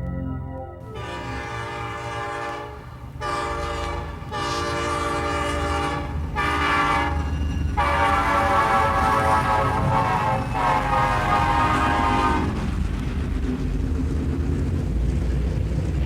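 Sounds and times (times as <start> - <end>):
train horn blasts: 0.8 - 12.8
moving train rumble: 0.8 - 16.0.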